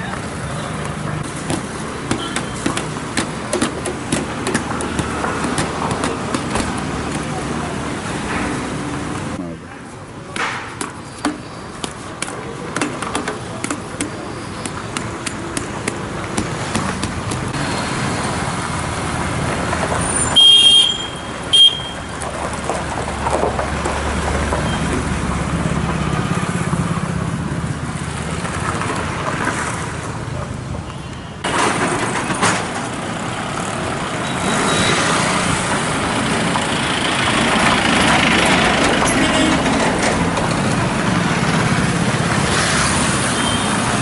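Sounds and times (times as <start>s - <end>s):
heavy vehicle engine rumbling: 0.0s - 44.0s
traffic on gravel road: 0.0s - 44.0s
vehicle horn toots: 20.4s - 22.1s, 39.1s - 39.6s.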